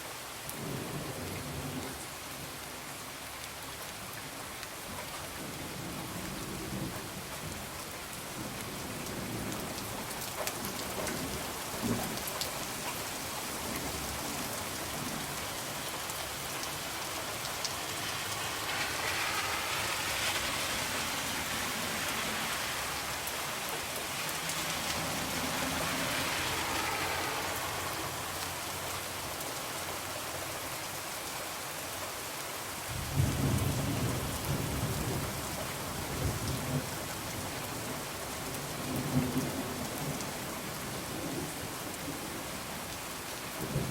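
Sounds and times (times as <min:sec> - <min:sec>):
rain pattering on a window: 0:00.1 - 0:43.9
thunder rumble: 0:17.9 - 0:23.3.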